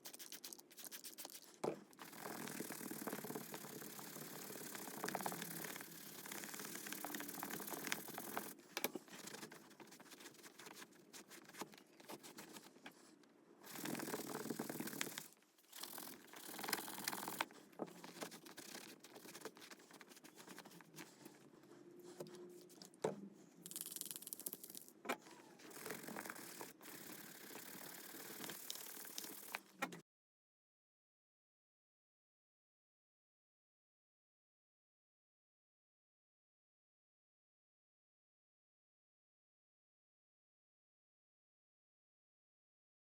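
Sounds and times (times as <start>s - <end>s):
scrubbing leather glove: 0.0s - 8.6s, 13.7s - 21.3s, 25.7s - 29.6s.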